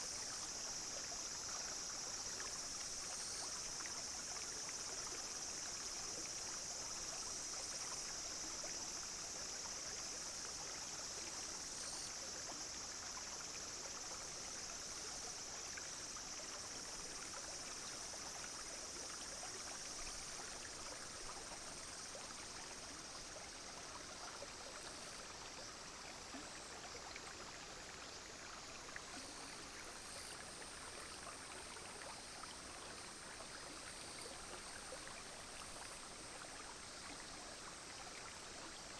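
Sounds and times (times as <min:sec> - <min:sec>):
cicadas droning: 0:00.0 - 0:38.9
stream trickling: 0:00.0 - 0:38.9.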